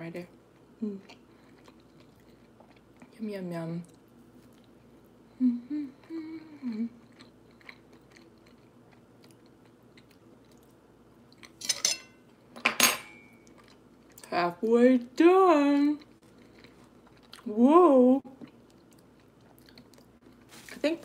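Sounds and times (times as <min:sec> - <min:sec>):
person chewing: 0:00.6 - 0:03.1, 0:06.0 - 0:11.6, 0:13.4 - 0:14.3, 0:16.0 - 0:17.5, 0:18.3 - 0:20.7
person humming: 0:05.3 - 0:07.0.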